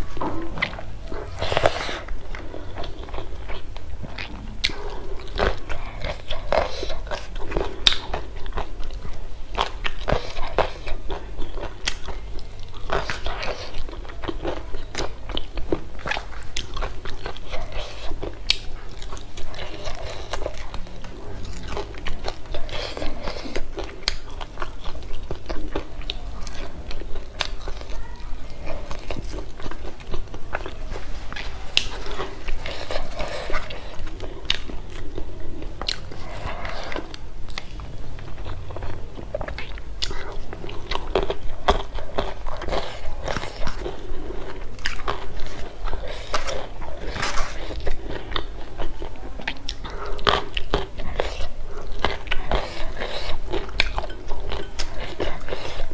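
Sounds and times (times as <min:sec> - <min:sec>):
chewing and crunching food: 0:00.0 - 0:55.9.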